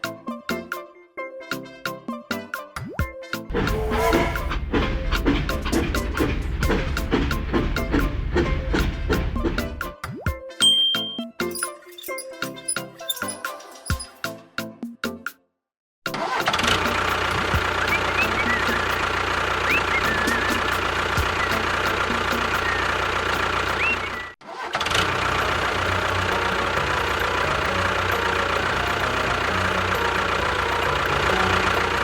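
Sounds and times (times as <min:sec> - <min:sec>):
engine running: 0:03.5 - 0:09.9, 0:16.2 - 0:32.0
short high chirps: 0:10.6 - 0:14.2.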